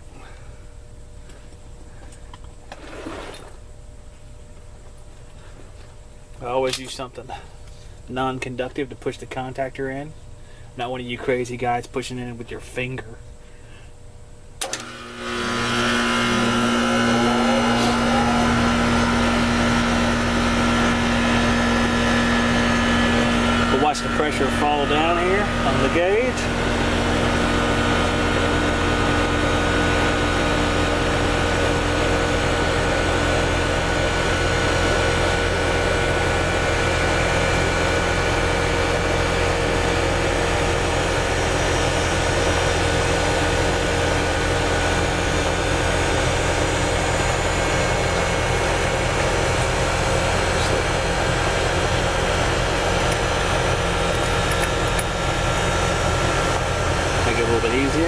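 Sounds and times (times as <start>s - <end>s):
air conditioner unit humming: 0.0s - 58.0s.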